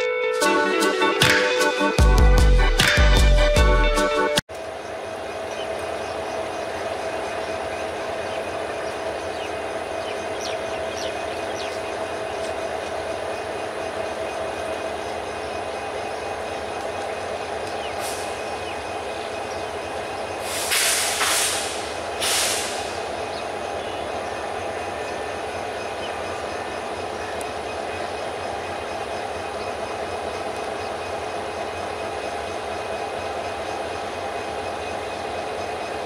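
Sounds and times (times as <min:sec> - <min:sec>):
train coaches rumbling: 0:00.0 - 0:36.0
constant hum: 0:04.5 - 0:36.0
loud hiss bursts: 0:20.4 - 0:23.1.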